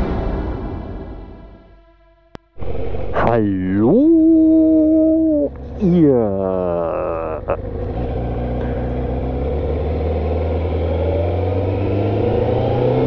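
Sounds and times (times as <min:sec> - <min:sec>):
motorcycle engine running: 0:04.1 - 0:13.0.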